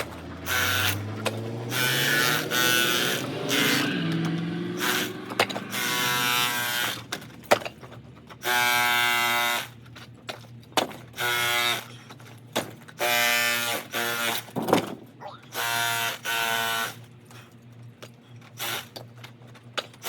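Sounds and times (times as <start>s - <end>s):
electric chisel chipping stucco: 0.0s - 7.3s, 8.4s - 9.8s, 11.1s - 12.0s, 13.0s - 14.6s, 15.5s - 17.1s, 18.6s - 19.0s.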